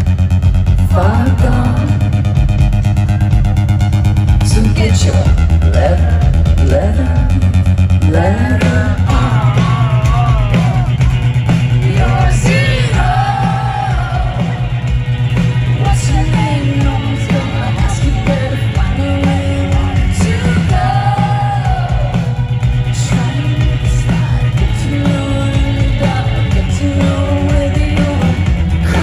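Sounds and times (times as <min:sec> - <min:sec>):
person singing: 0:08.1 - 0:11.1, 0:11.8 - 0:14.8, 0:15.8 - 0:29.0
live rock band playing: 0:09.0 - 0:29.0.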